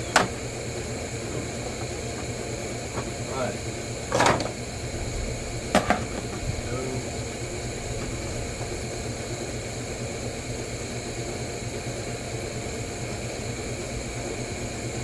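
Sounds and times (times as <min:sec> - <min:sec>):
mechanical hum and hiss: 0:00.0 - 0:15.0.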